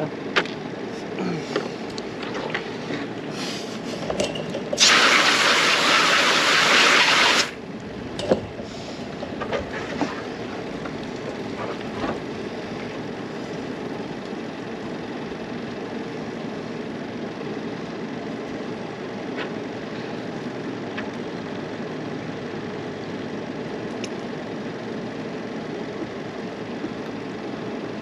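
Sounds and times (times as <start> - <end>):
water spraying from hose: 4.7 - 7.6.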